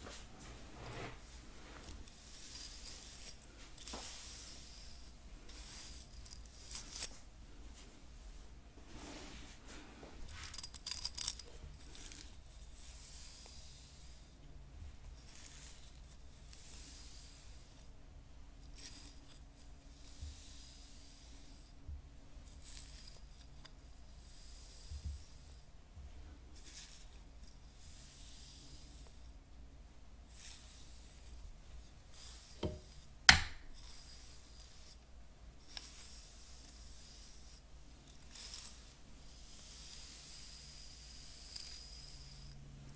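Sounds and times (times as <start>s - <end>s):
hairbrush bristles rubbing: 0.0s - 7.9s, 8.9s - 14.3s, 15.2s - 17.9s, 22.5s - 25.6s, 32.0s - 42.6s.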